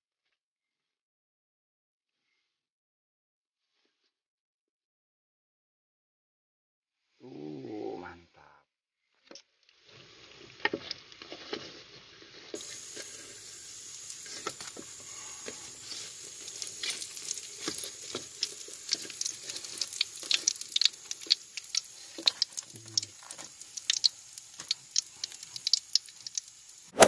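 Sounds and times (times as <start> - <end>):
fritters deep-frying in oil: 9.7 - 26.9.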